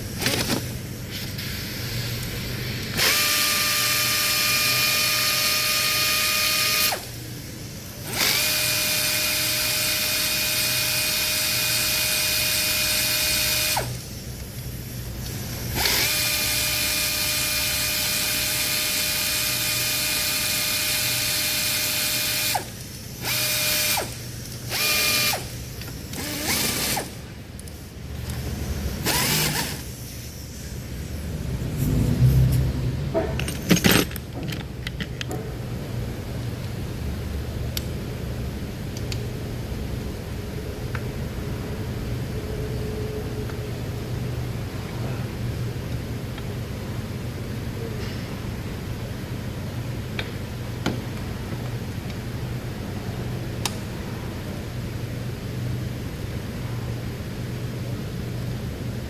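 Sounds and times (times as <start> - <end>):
power tool whining: 2.9 - 7.2, 8.0 - 14.0, 15.7 - 27.2, 29.0 - 29.9.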